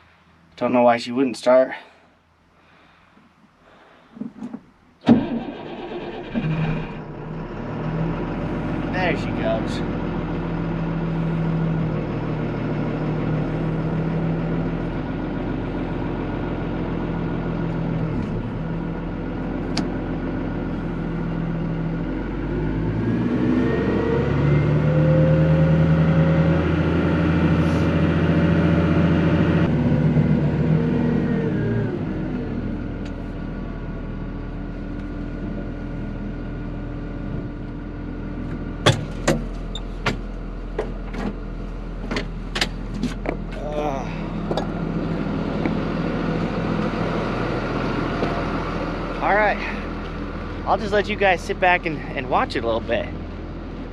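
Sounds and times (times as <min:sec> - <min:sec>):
heavy machine engine idling: 0:07.0 - 0:22.5, 0:32.0 - 0:53.9.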